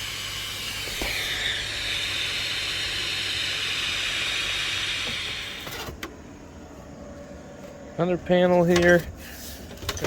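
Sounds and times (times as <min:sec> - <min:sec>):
high-pitched hiss: 0:00.0 - 0:05.9.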